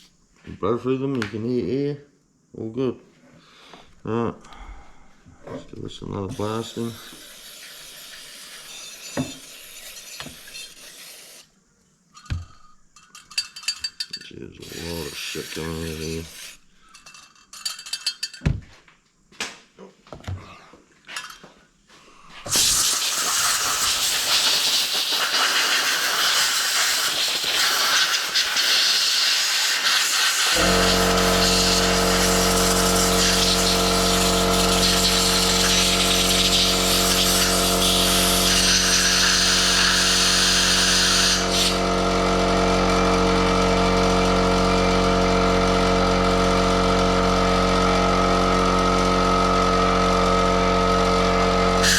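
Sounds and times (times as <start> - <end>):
air compressor motor running: 6.3 - 11.4, 14.6 - 16.6, 22.4 - 51.9
compressed-air blowgun hissing: 6.3 - 11.5, 14.6 - 16.8, 22.5 - 41.9.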